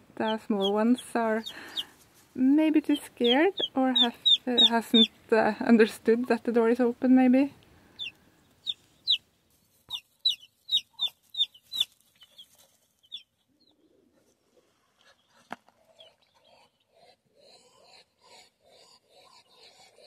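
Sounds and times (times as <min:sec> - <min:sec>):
chicks peeping: 0:00.2 - 0:02.0, 0:02.6 - 0:05.2, 0:07.9 - 0:14.0.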